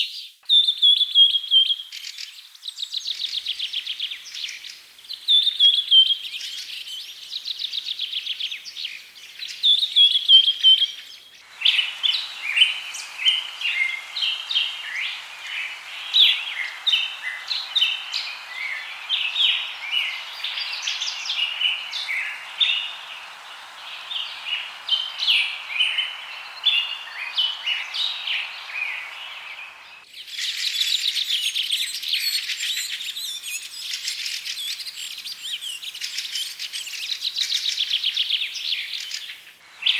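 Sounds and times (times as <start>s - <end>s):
steady hiss: 3.1s - 39.9s
birds chirping and calling: 11.4s - 30.5s.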